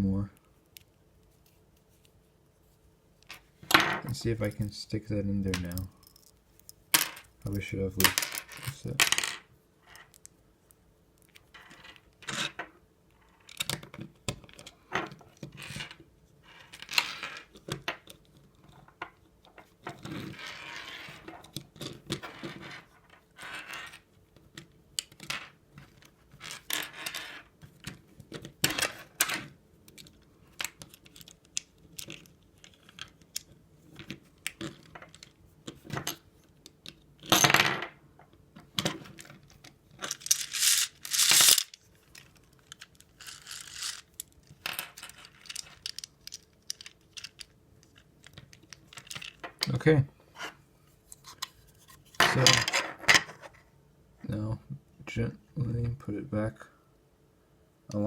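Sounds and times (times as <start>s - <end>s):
plastic parts clicking and rattling: 27.8s - 37.4s, 38.6s - 49.8s.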